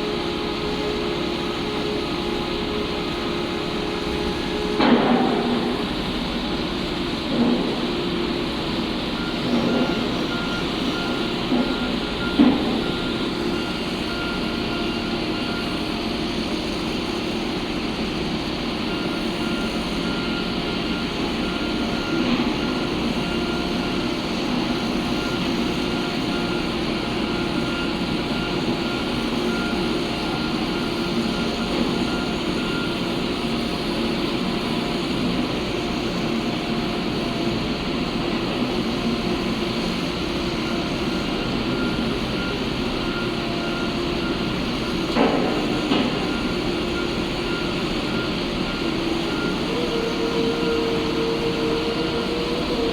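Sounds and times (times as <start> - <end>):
heavy machinery running: 0.0 - 52.9
high-pitched alarm tone: 40.3 - 52.9.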